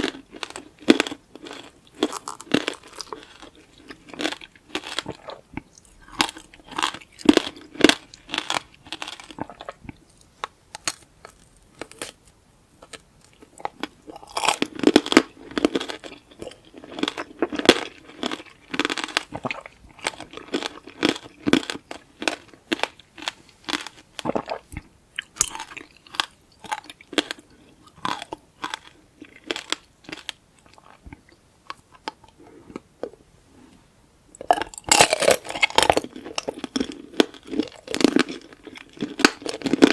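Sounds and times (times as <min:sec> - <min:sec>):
hard candy shell crunching: 0:00.0 - 0:05.3, 0:25.2 - 0:31.0, 0:34.4 - 0:39.9.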